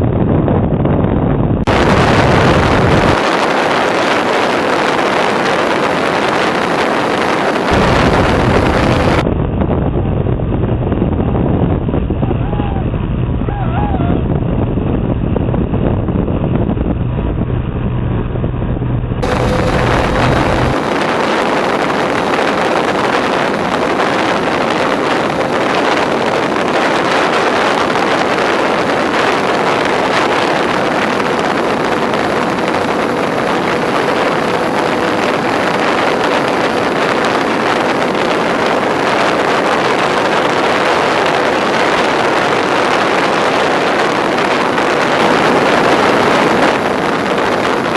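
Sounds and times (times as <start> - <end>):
wind rushing over microphone: 0.0 - 47.9
faint electric motor whine: 19.2 - 22.6.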